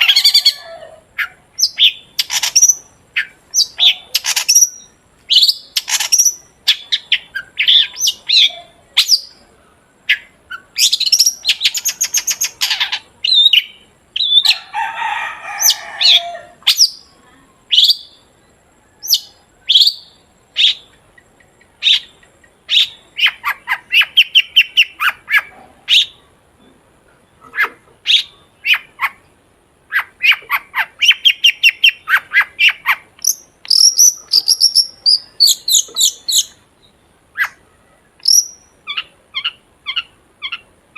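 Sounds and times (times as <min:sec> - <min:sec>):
harsh grating bird call: 0:00.0 - 0:09.4
bird singing sharp chirps and trills: 0:01.2 - 0:14.6, 0:15.6 - 0:26.2, 0:29.9 - 0:40.7.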